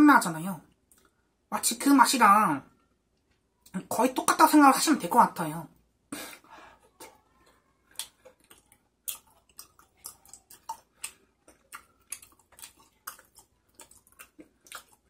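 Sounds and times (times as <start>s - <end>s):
wet mouth clicks chewing: 6.9s - 15.0s.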